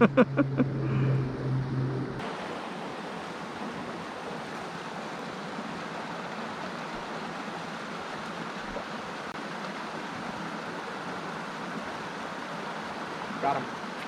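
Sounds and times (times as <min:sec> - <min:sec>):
stream running: 0:02.2 - 0:14.0.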